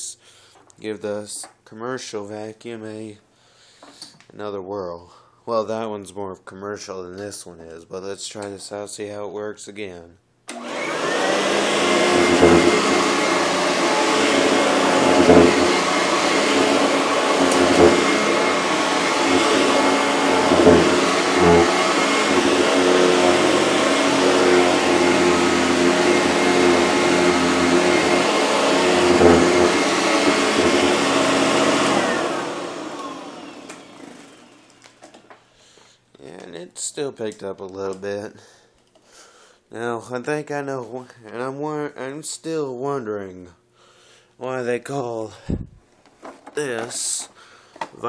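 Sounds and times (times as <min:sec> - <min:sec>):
vacuum cleaner running over rug: 0:10.5 - 0:35.2
vacuum motor spinning down: 0:10.5 - 0:35.2.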